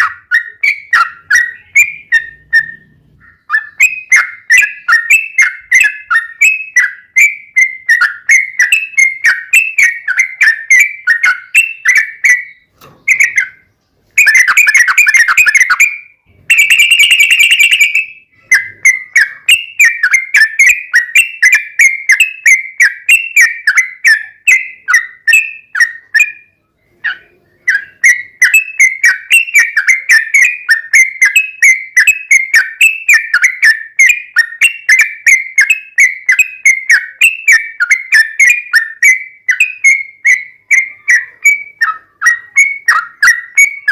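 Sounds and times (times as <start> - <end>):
bird chattering whistled song: 0.0 - 43.9.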